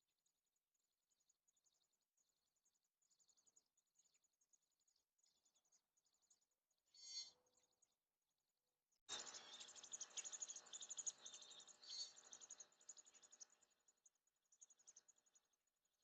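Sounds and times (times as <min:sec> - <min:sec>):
nestlings chirping: 0:09.1 - 0:13.7.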